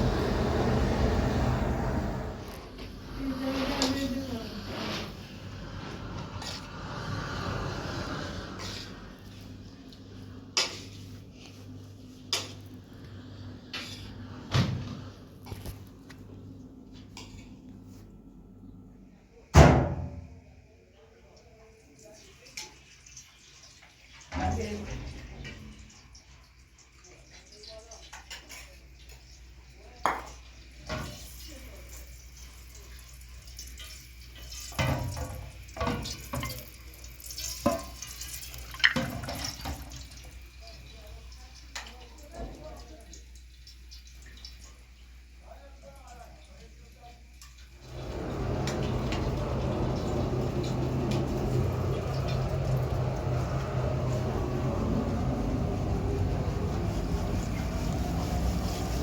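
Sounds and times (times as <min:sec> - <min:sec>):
steady low hum: 0:00.0 - 0:03.6.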